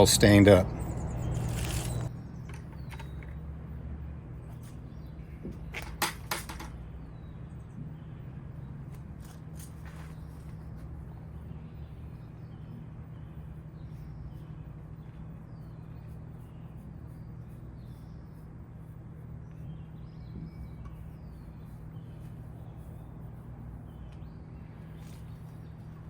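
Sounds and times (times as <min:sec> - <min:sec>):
low hum: 0:00.0 - 0:05.5
birds chirping: 0:00.0 - 0:26.0.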